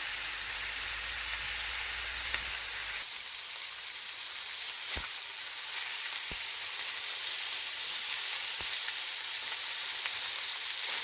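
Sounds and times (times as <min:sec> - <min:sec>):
fish sizzling in frying pan: 0:00.0 - 0:11.0.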